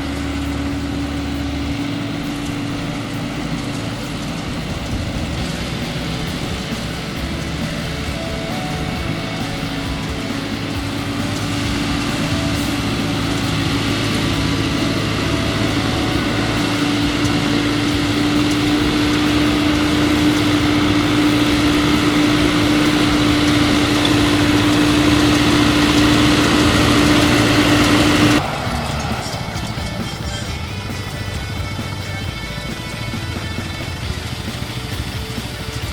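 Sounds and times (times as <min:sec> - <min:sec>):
strong steady whine: 0:00.0 - 0:35.9
tractor diesel engine running: 0:00.0 - 0:35.9.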